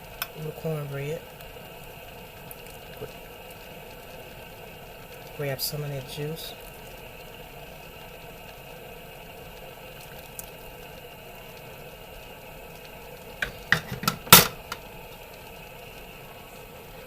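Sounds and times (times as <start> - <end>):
ladle clinking against pot: 13.4 - 14.8.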